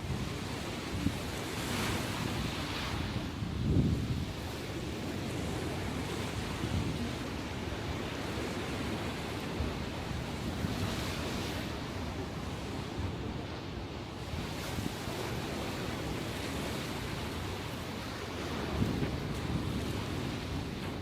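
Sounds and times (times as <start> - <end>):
ocean waves washing ashore: 0.0 - 21.0
wind on microphone: 0.0 - 21.0.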